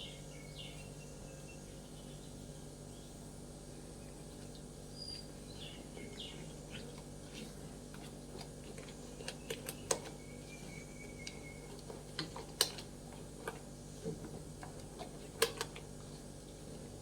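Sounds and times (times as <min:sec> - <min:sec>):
bird chirps: 0:04.9 - 0:06.8.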